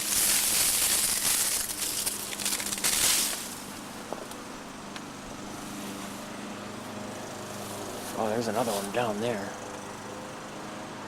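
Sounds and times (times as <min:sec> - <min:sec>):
vines and leaves rustling: 0:00.0 - 0:04.6, 0:05.4 - 0:09.2.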